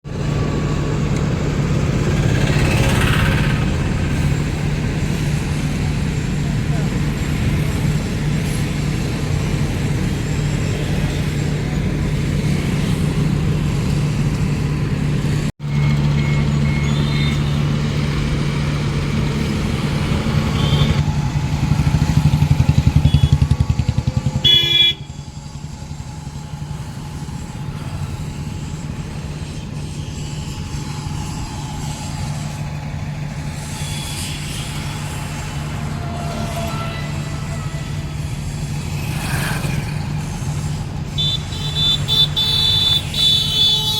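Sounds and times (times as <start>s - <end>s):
heavy engine droning: 0.0s - 43.9s
horn toot: 19.4s - 21.0s, 33.7s - 43.9s.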